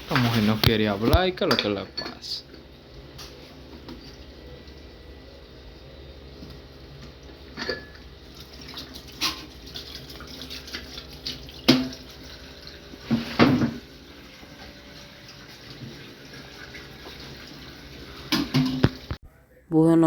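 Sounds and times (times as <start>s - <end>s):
water running: 6.5s - 19.2s.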